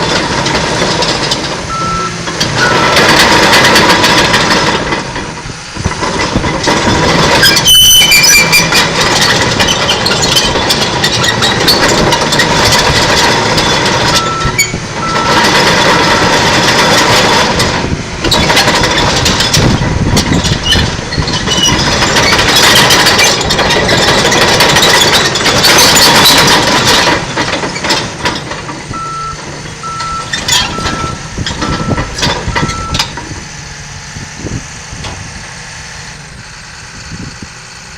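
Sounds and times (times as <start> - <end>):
bulldozer diesel engine clattering: 0.0 - 37.9
reverse alarm beeping: 1.7 - 3.1, 14.1 - 16.4, 28.9 - 33.2.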